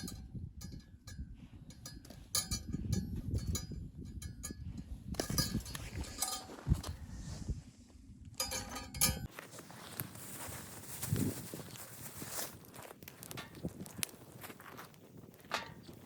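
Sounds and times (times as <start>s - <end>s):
metallic clinks and knocks: 0.0s - 7.0s, 8.4s - 9.3s.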